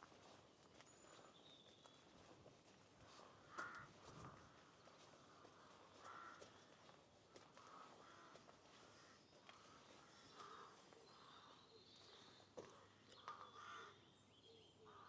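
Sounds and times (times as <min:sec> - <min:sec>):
faint birdsong: 0:08.8 - 0:15.0.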